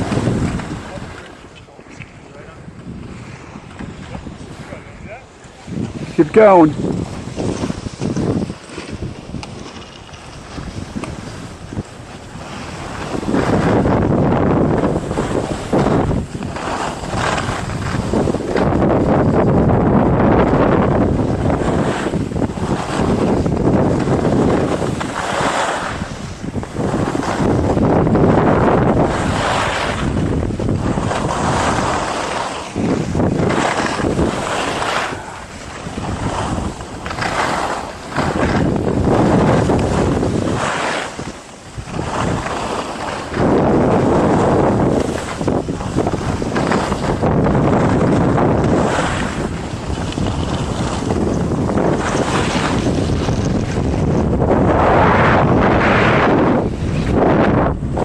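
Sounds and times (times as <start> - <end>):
skis scraping on snow: 0.0 - 58.0
wind rushing over microphone: 0.0 - 58.0.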